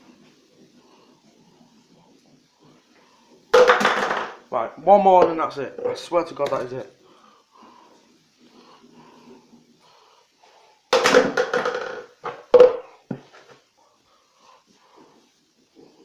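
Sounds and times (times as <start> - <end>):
fidget spinner clattering knocks: 3.5 - 4.5, 10.9 - 12.9.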